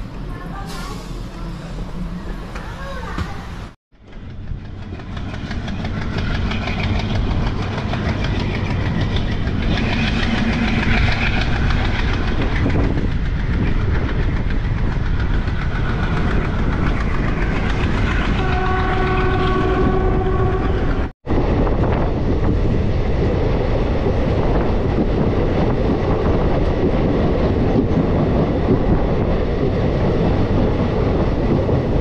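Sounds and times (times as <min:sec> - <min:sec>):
train rumbling on rails: 0:00.0 - 0:32.0
train horn: 0:18.3 - 0:21.1.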